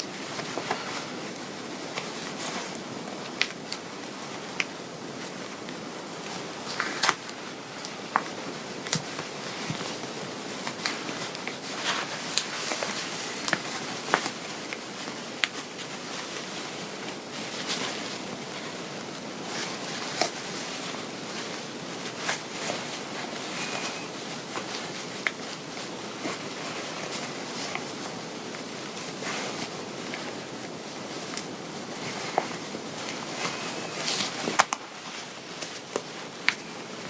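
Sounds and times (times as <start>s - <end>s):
fabric rustling: 0.0s - 37.0s.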